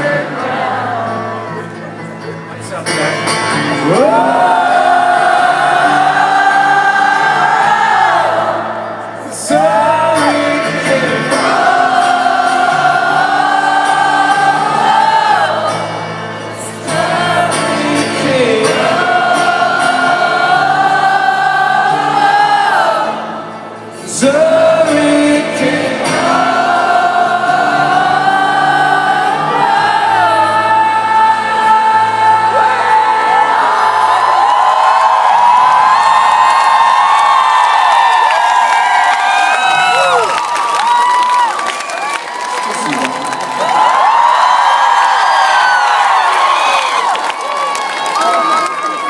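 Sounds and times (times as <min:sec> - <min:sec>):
choir singing wordless notes: 0:00.0 - 0:01.6, 0:03.8 - 0:35.2.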